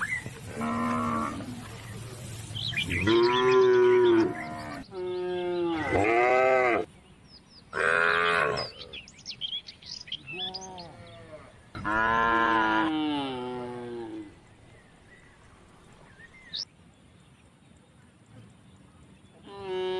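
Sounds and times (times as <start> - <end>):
cattle mooing: 0.5 - 1.5.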